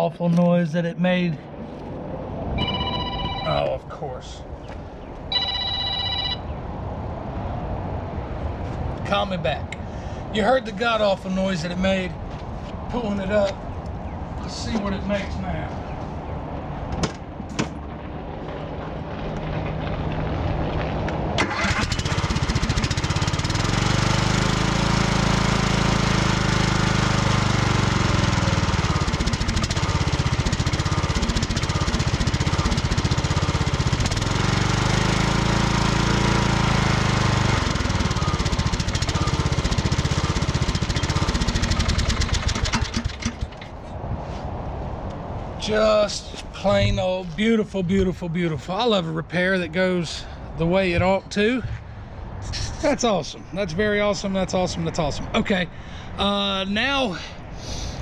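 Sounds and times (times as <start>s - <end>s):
riding lawn mower engine: 17.9s - 43.9s.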